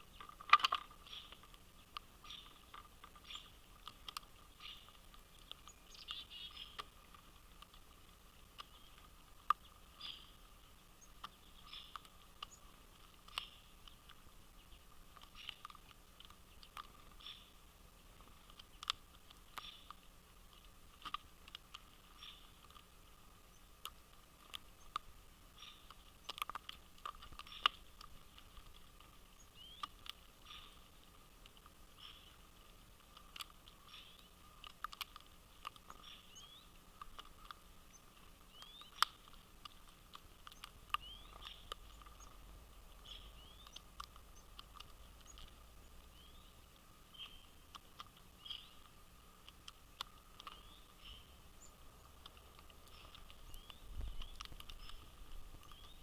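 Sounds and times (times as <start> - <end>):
bird chirps: 0.0 - 7.0, 8.6 - 13.8, 16.5 - 17.6, 19.5 - 20.0, 22.1 - 22.8, 24.7 - 26.4, 27.3 - 27.9, 29.3 - 30.9, 31.9 - 32.4, 33.8 - 34.6, 35.8 - 39.8, 40.5 - 47.6, 48.4 - 48.9, 50.0 - 52.1, 52.8 - 56.0
birds pecking at seed: 0.0 - 56.0.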